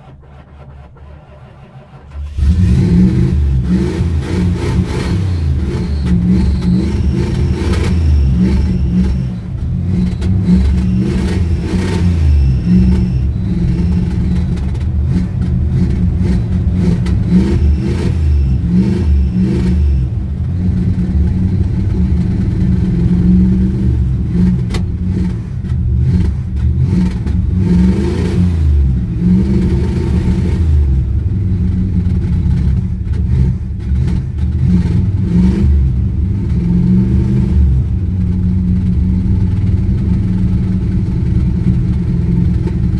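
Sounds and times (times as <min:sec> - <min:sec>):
car engine running unevenly: 0:00.0 - 0:42.9.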